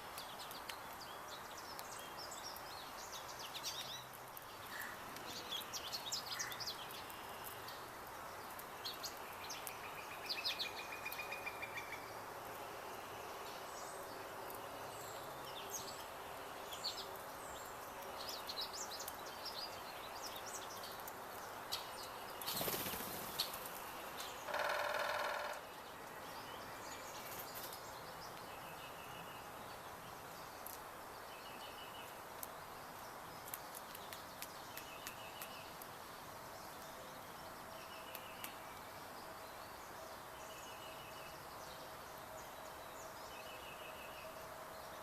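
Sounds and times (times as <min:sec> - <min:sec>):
background hiss: 0:00.0 - 0:45.0
songbirds chirping: 0:00.0 - 0:45.0
rapid bird trill: 0:24.4 - 0:25.6.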